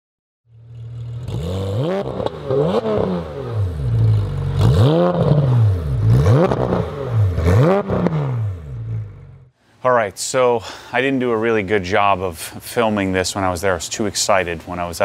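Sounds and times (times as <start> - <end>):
car engine revving: 0.5 - 9.5.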